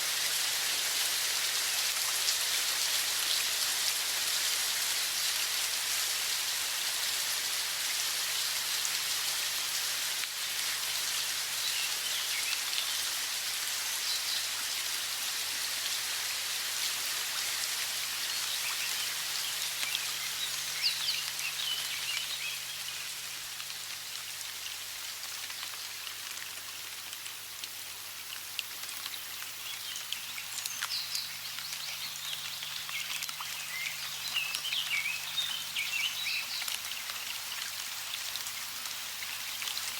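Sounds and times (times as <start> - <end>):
running water hiss: 0.0 - 39.9
small birds chirping: 18.2 - 23.1, 29.6 - 37.4.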